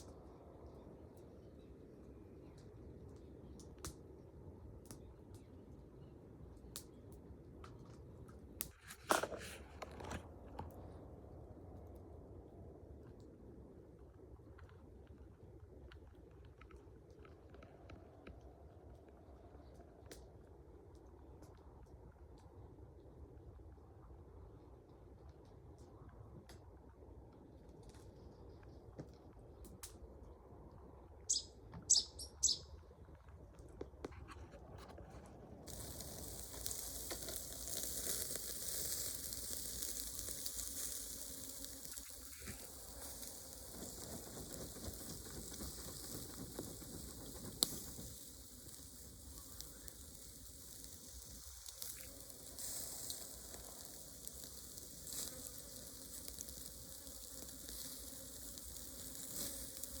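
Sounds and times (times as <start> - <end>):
bird chirps: 31.3 - 32.8.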